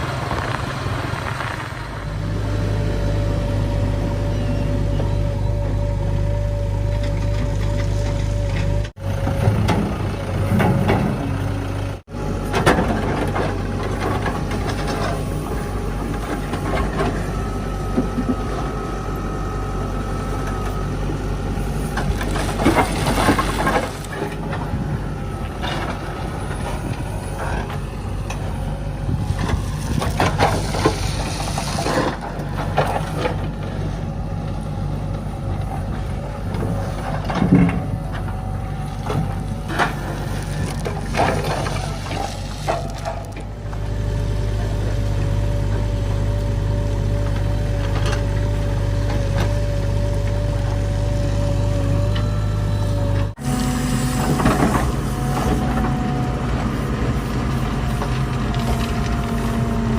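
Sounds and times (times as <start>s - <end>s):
backhoe engine running: 0.0s - 59.9s
soil clattering and knocking: 36.6s - 43.8s.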